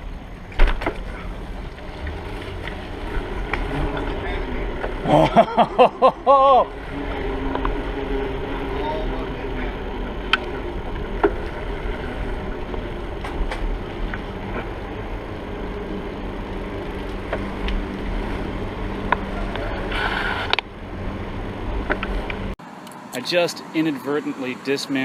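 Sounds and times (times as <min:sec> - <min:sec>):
bicycle tyre noise: 0:00.0 - 0:22.6.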